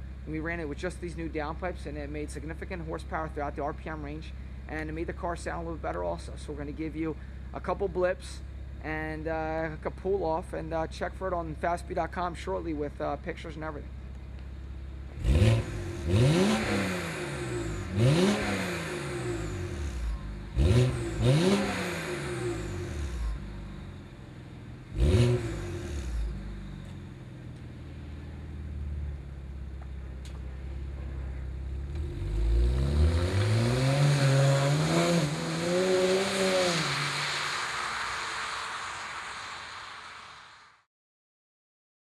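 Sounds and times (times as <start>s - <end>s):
car engine revving: 14.2s - 40.8s
car accelerating away: 15.0s - 40.8s.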